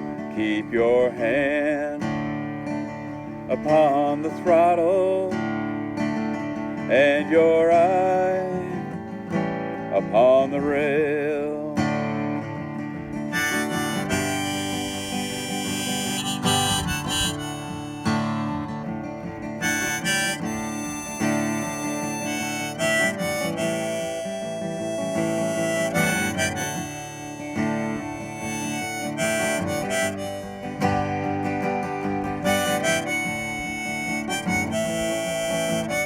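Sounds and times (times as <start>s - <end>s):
strummed acoustic guitar: 0.0s - 36.0s
harmonica melody: 12.0s - 36.0s.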